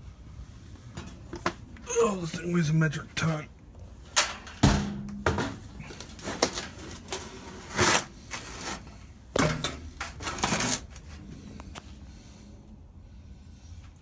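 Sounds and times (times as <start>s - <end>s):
metal fan rattle: 0.7s - 1.8s, 4.0s - 11.4s
metal fan knocking and clattering: 4.1s - 7.2s, 9.3s - 11.0s.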